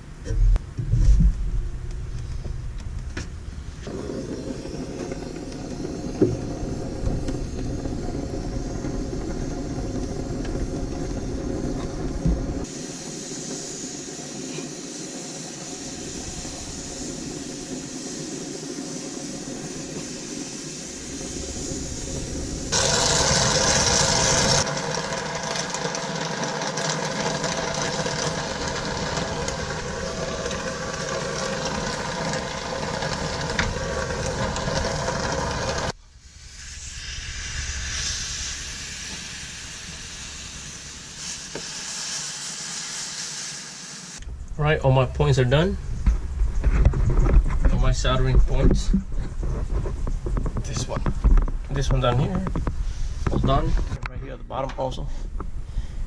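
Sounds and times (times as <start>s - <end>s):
gas torch flame hissing: 3.5s - 44.3s.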